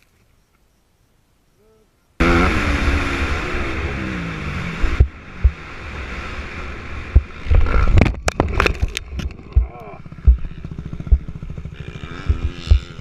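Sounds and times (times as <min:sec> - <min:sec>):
dirt bike engine: 0:02.2 - 0:13.0
wind buffeting microphone: 0:04.8 - 0:13.0.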